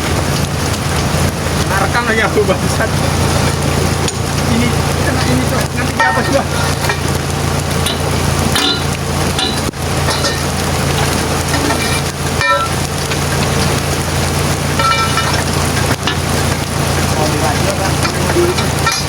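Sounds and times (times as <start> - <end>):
diesel truck engine idling: 0.0 - 19.0
drizzling rain hiss: 0.0 - 19.0
faint voices: 16.8 - 19.0.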